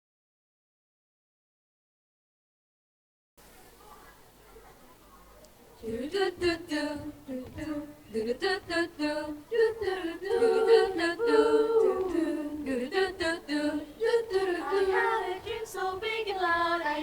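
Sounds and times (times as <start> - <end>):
choir singing a cappella: 5.8 - 17.0.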